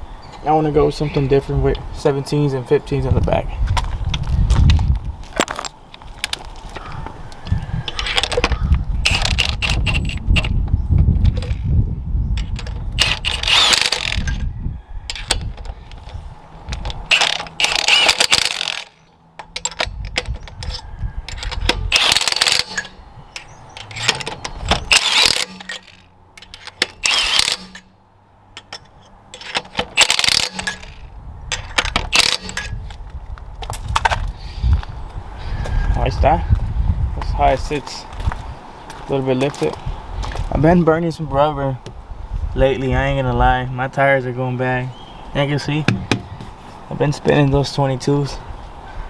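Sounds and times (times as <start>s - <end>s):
metal tools clanking and ratcheting: 5.4s - 6.4s, 7.9s - 10.6s, 11.3s - 11.6s, 12.4s - 14.4s, 15.1s - 27.9s, 28.6s - 33.0s.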